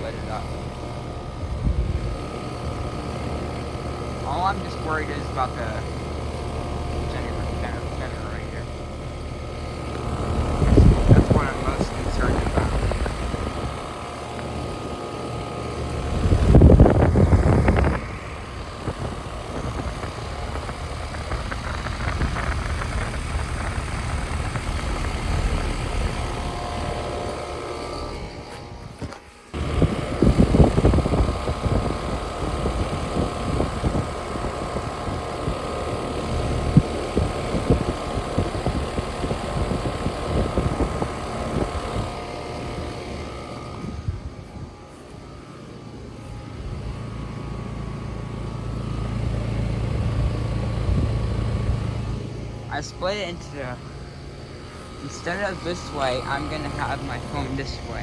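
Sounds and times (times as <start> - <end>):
air conditioner units humming: 0.0 - 58.0.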